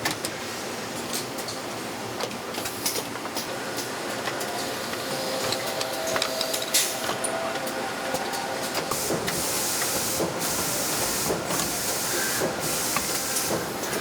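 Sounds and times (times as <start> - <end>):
assembly-line machinery running: 5.2 - 14.0.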